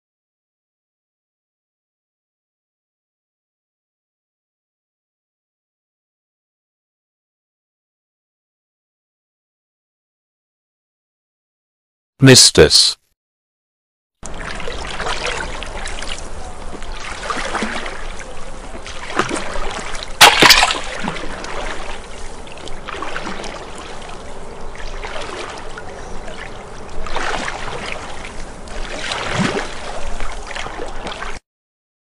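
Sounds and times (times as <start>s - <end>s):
water splashing and sloshing: 14.2s - 31.4s.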